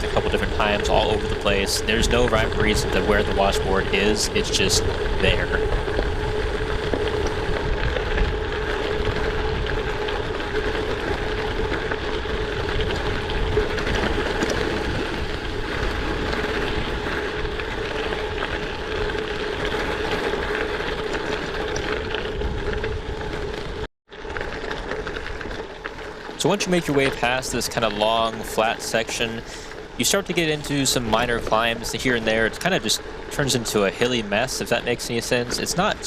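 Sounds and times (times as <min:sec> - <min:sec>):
steady hum: 0:00.0 - 0:21.3
wind noise on microphone: 0:00.0 - 0:23.9
bike tyres rumbling on gravel: 0:00.0 - 0:36.0.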